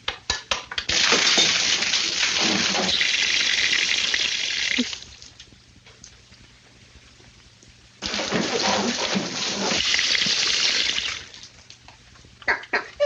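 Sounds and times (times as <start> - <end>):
water gushing from a pipe: 0.9 - 5.3, 8.0 - 11.6.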